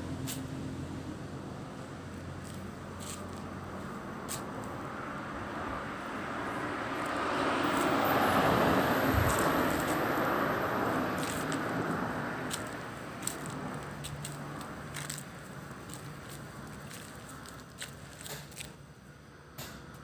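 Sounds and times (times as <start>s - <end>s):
crunching clicks and crackles: 12.5s - 18.8s.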